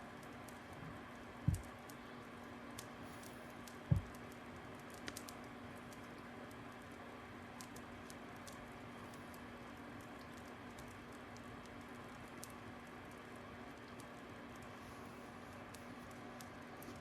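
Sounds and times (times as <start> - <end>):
faint steady hum: 0.0 - 17.0
wood fire crackling: 0.0 - 17.0
dull thumps: 1.4 - 1.7, 3.9 - 4.1.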